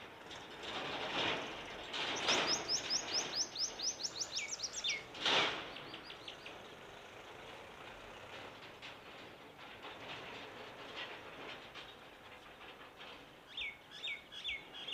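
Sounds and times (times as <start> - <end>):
songbird singing: 1.9 - 6.8, 13.5 - 14.9.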